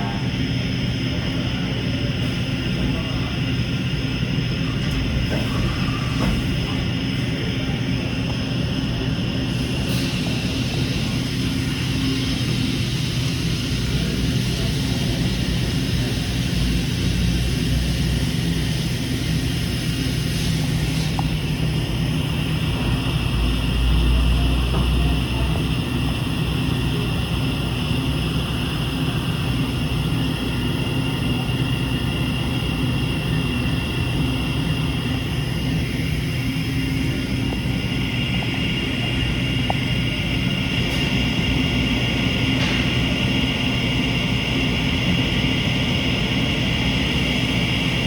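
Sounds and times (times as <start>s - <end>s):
high-pitched machine whines: 0.0s - 48.0s
milling machine hum: 0.0s - 48.0s.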